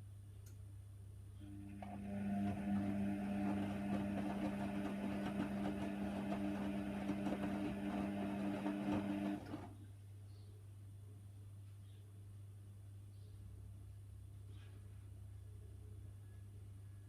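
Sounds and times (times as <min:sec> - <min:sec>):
washing machine drum whine: 0:01.5 - 0:09.7.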